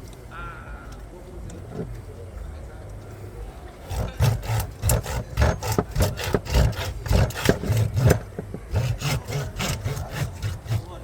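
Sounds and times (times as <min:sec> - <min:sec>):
knife sawing through fish: 0:03.8 - 0:11.0.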